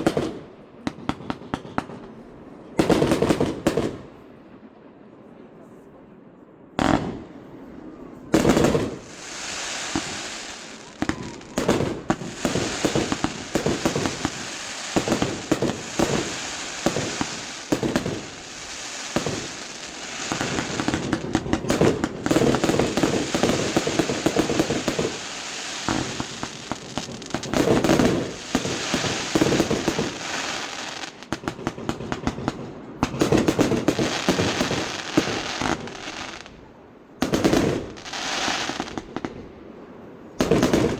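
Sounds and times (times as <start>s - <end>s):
fireworks crackling: 8.0s - 36.6s, 37.2s - 39.4s, 40.4s - 40.9s
fireworks shells bursting: 8.6s - 31.2s.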